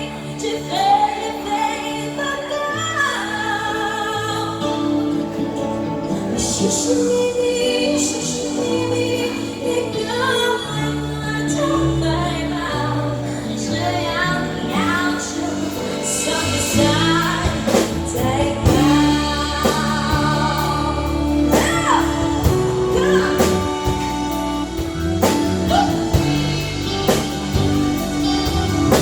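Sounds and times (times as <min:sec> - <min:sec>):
electric guitars: 0:00.0 - 0:29.0
bass guitar: 0:04.4 - 0:29.0
people singing: 0:06.1 - 0:29.0
drum kit: 0:14.7 - 0:29.0.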